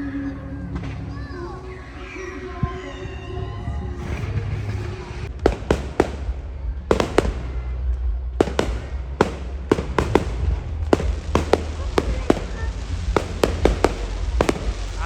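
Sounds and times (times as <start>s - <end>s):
low rumble: 0.0s - 15.0s
fireworks bangs: 4.1s - 15.0s.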